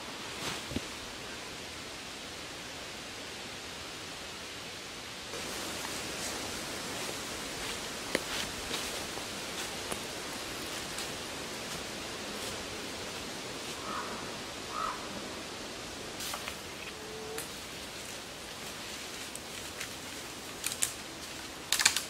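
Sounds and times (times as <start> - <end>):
background hiss of woods: 0.0 - 22.0
footsteps crunching dry leaves: 5.4 - 14.0, 17.4 - 22.0
twigs snapping: 20.6 - 21.0, 21.7 - 22.0.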